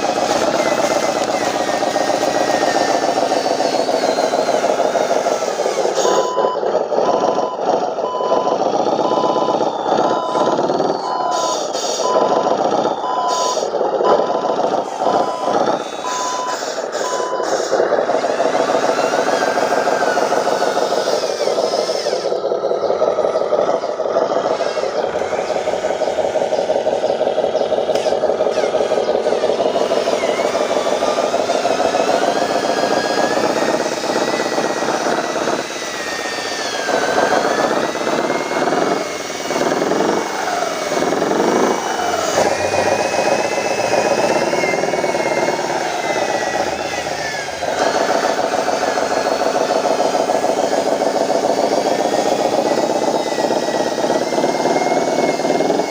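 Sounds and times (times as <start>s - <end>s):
reversing beeper: 0.0s - 51.1s
toy truck motor drone: 0.0s - 55.9s.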